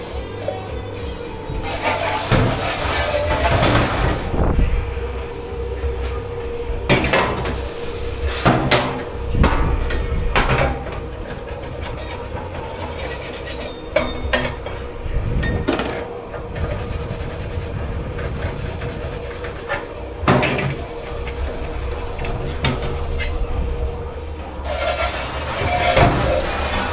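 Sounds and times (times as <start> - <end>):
kitchen machinery hum: 0.0 - 26.9
dishes and pots clattering: 1.6 - 4.3, 6.9 - 17.5, 18.1 - 23.4, 24.6 - 26.9.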